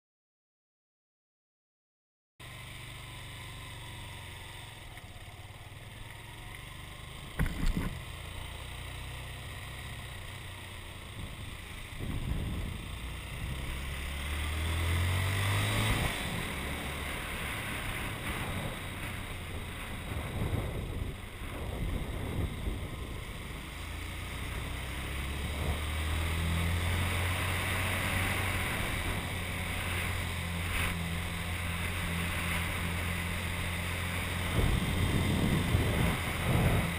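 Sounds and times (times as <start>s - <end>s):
motorcycle engine running: 2.4s - 36.9s
wind noise on microphone: 12.0s - 13.6s, 19.5s - 23.5s, 34.4s - 36.9s.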